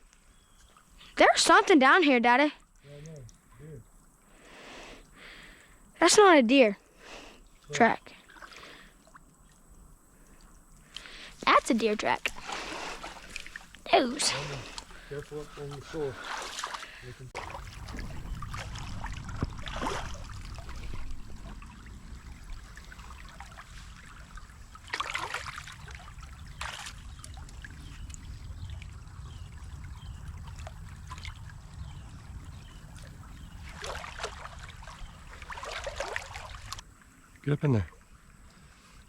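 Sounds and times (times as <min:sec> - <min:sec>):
creek water trickling: 0:00.0 - 0:39.0
swishing steps in water: 0:07.3 - 0:28.2, 0:32.7 - 0:36.8
low rumble: 0:17.3 - 0:24.8.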